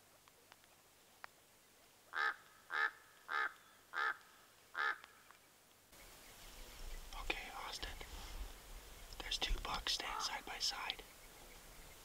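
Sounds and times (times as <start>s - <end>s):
bird calling: 2.1s - 5.4s.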